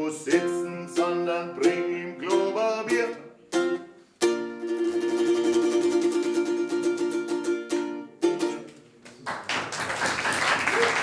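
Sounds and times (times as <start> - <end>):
strummed acoustic string instrument: 0.0 - 8.8
applause: 9.1 - 11.0.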